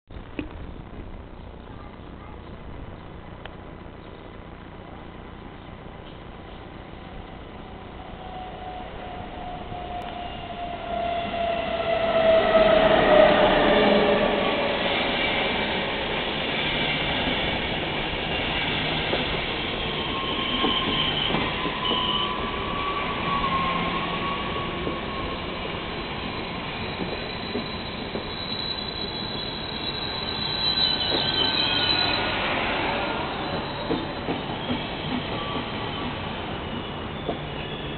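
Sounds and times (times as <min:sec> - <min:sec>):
locomotive whine: 0:00.2 - 0:37.9
squealing wheels: 0:08.0 - 0:37.9.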